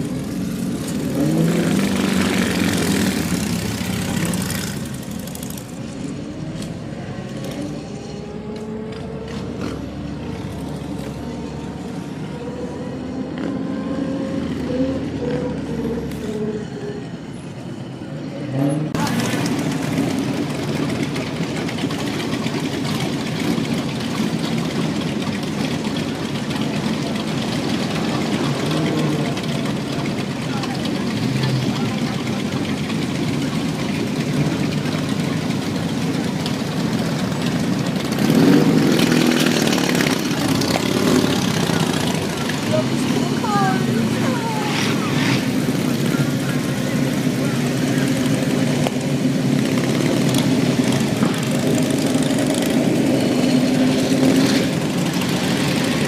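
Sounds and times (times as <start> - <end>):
car engine running: 18.9 - 56.0
steady rush of noise: 24.8 - 56.0.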